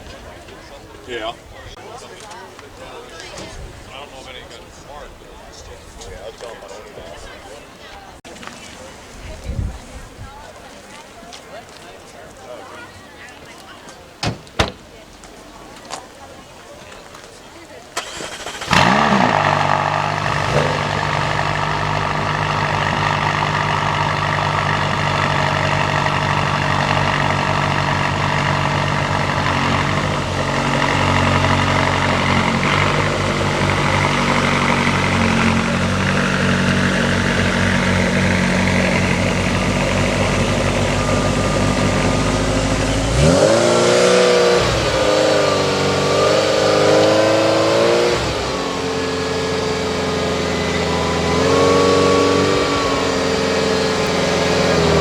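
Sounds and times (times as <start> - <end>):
sports car engine idling and revving: 18.0 - 55.0.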